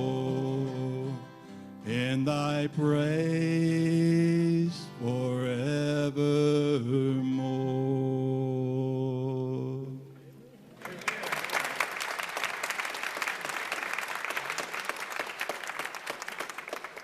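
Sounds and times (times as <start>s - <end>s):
congregation applauding: 10.7s - 17.0s.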